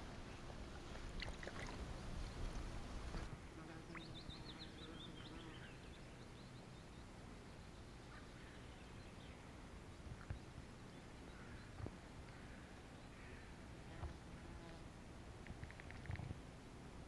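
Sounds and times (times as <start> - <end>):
bird chirping: 3.9 - 9.5.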